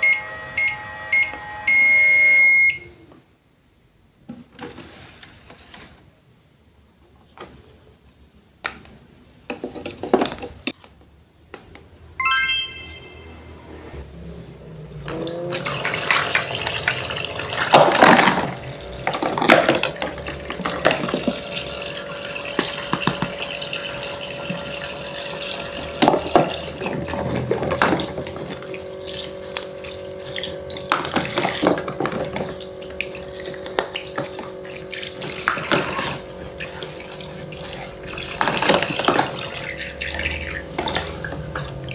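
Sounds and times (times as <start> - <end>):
short high chime: 12.2 - 13.9
tap water running into sink: 15.5 - 41.9.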